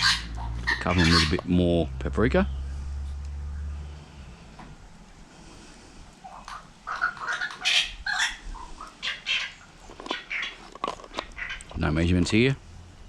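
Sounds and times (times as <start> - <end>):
bird chirping: 6.2 - 11.7.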